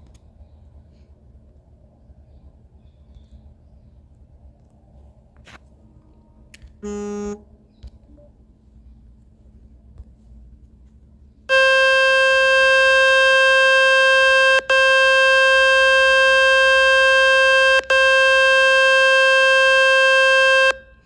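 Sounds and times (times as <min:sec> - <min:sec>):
phone speaker buzzing test tone: 0:06.8 - 0:07.5, 0:11.5 - 0:21.0.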